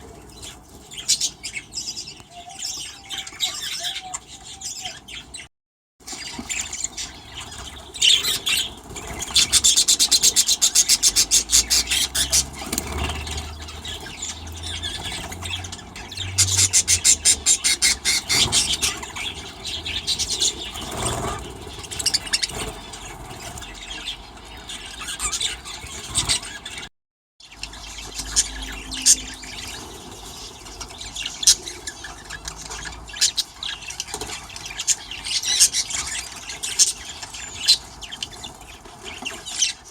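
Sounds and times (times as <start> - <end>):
budgies chattering and squawking: 0.0 - 26.9, 27.5 - 39.9
fast high squealing calls: 7.0 - 22.7.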